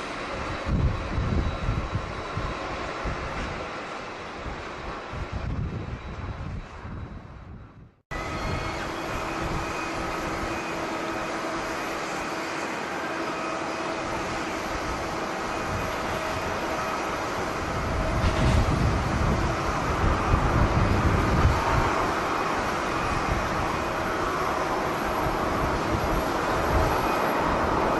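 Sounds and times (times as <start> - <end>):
jet engines whining: 0.0 - 7.5, 8.1 - 27.9
wind buffeting microphone: 0.0 - 12.3, 14.0 - 27.9.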